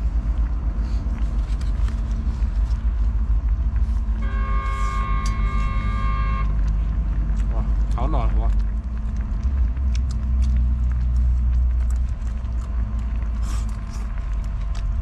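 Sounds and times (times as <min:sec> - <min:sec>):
constant low rumble: 0:00.0 - 0:15.0
horn blast: 0:04.2 - 0:06.6.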